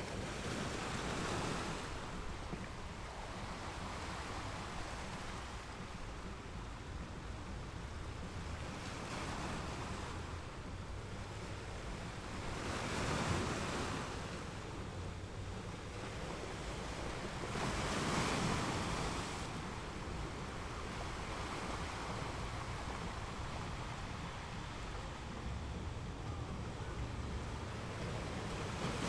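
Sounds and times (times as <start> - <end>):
waves breaking over rocks: 11.3 - 29.0.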